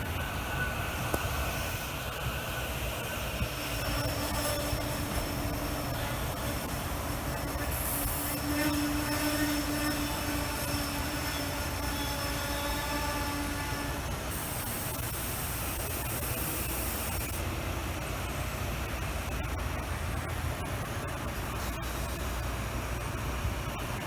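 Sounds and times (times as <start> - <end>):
train rumbling on rails: 0.0 - 24.0
high hiss: 0.2 - 17.4.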